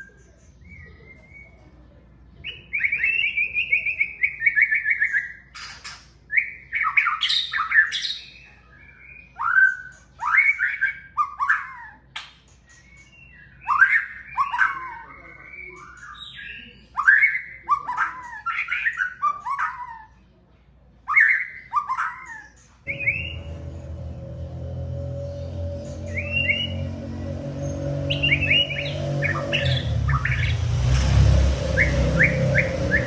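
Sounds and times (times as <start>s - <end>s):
songbird whistling phrases: 2.4s - 5.4s, 12.8s - 20.1s, 21.1s - 23.6s, 26.0s - 27.0s, 28.0s - 30.6s, 31.7s - 33.0s
bird trilling: 21.3s - 23.9s, 25.5s - 33.0s.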